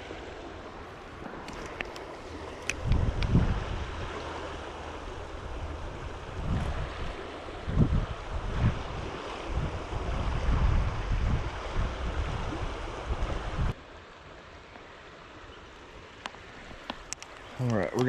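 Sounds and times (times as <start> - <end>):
rush of outdoor noise: 0.0 - 18.0
wind buffeting microphone: 1.2 - 13.8.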